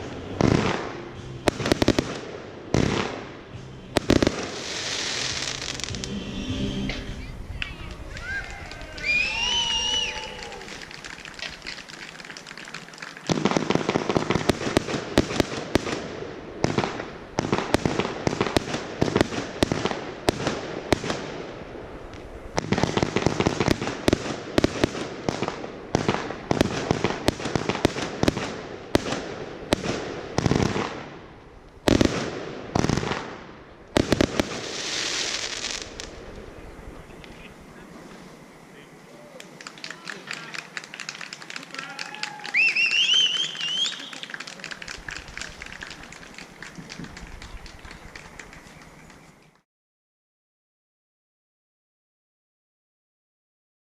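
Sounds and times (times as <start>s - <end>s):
loud firework bangs: 0.0s - 6.2s, 6.9s - 38.9s, 39.5s - 48.6s
fireworks bangs and crackling: 0.0s - 49.6s
brief hiss: 3.5s - 11.9s.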